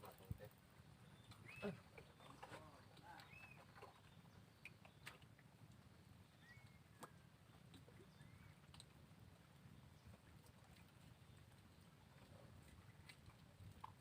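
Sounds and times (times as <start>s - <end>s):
faint clicks: 8.6s - 9.0s.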